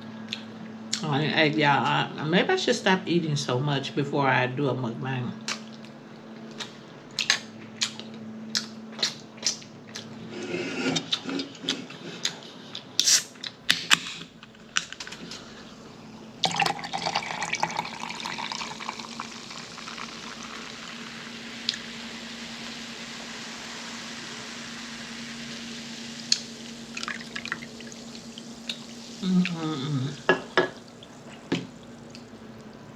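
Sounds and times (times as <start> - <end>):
wet eating clicks and smacks: 6.5 - 10.1
running water hiss: 15.1 - 32.9.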